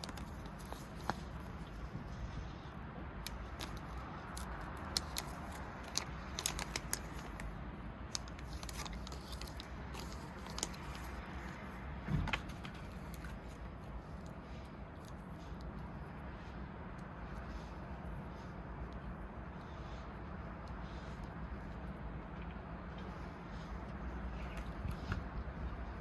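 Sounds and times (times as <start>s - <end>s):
small objects clicking and rustling: 3.2s - 7.5s.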